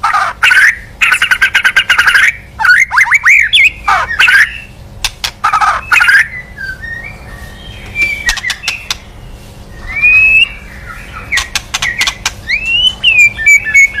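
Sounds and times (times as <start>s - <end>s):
bird harsh clicking notes: 0.1s - 6.3s, 7.9s - 9.1s, 10.4s - 14.0s
bird whistled notes: 5.7s - 9.0s, 9.7s - 14.0s.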